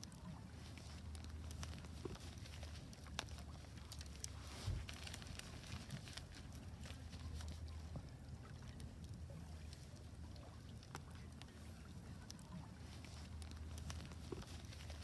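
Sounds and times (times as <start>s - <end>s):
wood fire crackling: 0.2s - 7.8s.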